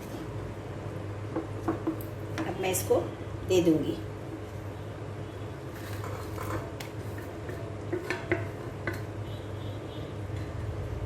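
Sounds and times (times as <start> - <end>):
metal spoon stirring in pot: 5.6 - 9.3.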